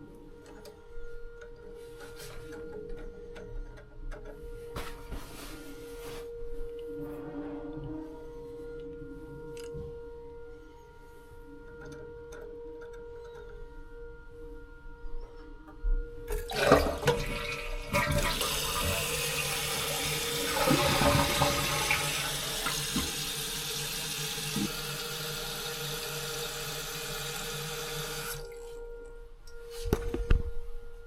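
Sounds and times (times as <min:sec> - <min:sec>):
soft background music: 0:00.0 - 0:31.0
toilet water rushing: 0:16.3 - 0:28.6
toilet clunks: 0:16.4 - 0:23.6.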